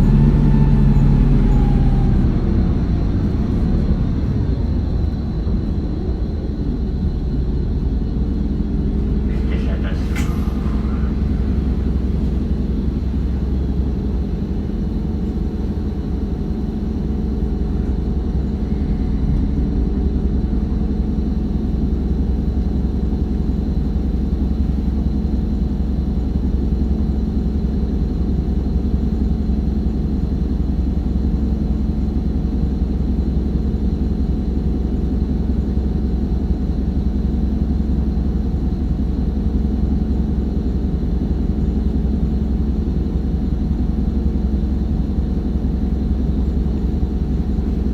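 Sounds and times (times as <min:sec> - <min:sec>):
road noise: 0:00.0 - 0:20.6
diesel engine drone: 0:00.0 - 0:47.9.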